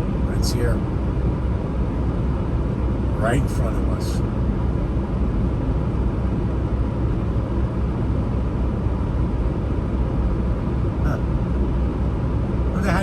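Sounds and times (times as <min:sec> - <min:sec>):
diesel truck engine rumbling: 0:12.6 - 0:13.0.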